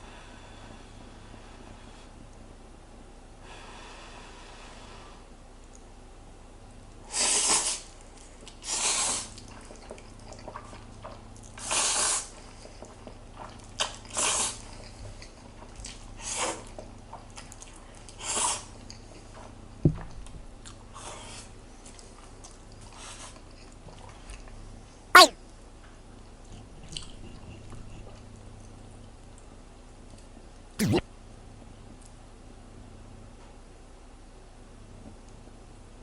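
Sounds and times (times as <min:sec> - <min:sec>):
person slurping noodles: 0:30.8 - 0:31.0.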